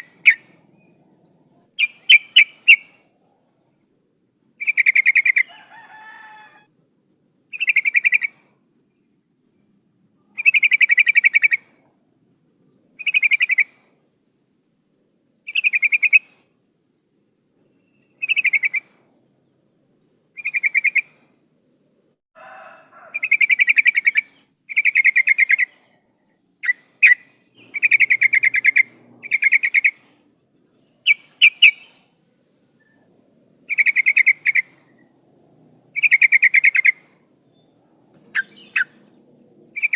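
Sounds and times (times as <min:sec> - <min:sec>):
bird chattering calls: 0:01.6 - 0:02.9, 0:04.6 - 0:05.5, 0:07.5 - 0:08.4, 0:10.4 - 0:11.7, 0:15.5 - 0:16.4, 0:18.2 - 0:19.0, 0:20.3 - 0:21.2, 0:23.2 - 0:25.9, 0:26.6 - 0:30.2, 0:30.9 - 0:32.1, 0:32.9 - 0:37.2, 0:38.2 - 0:39.9.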